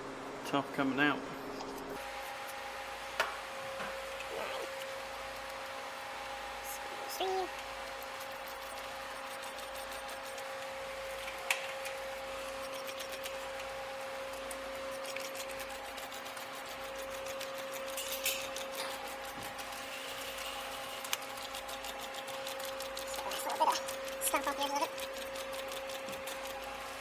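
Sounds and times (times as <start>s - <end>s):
mechanical hum: 0.0s - 27.0s.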